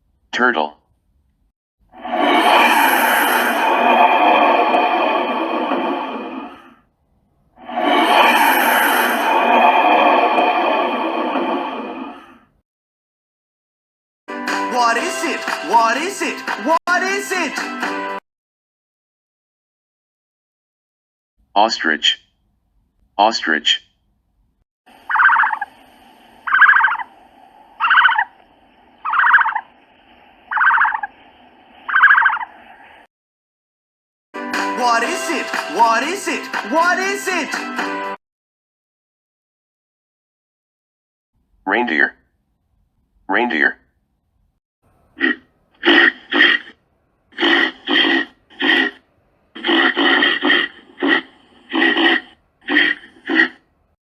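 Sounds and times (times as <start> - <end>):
short rasping animal calls: 24.9 - 31.2, 31.8 - 32.8, 45.0 - 53.7
recording hiss: 24.9 - 33.1.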